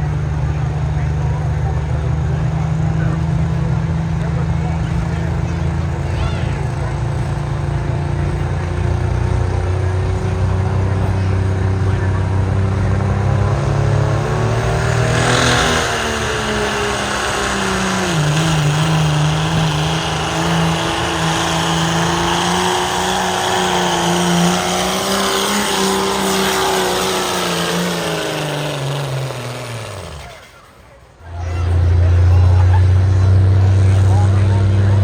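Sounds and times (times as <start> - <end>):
vehicle engine running hard: 0.0 - 35.0.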